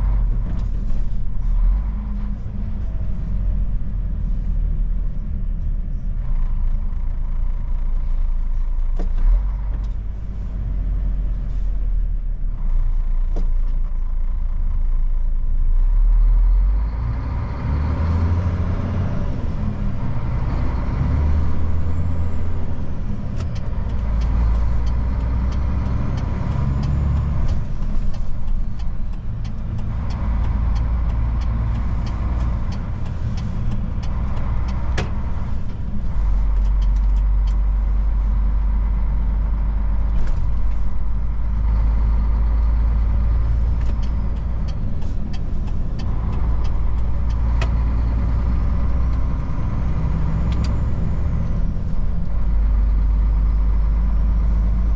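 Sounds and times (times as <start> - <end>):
truck diesel engine driving: 0.0 - 54.9
sharp clicks and rattles: 23.1 - 49.6.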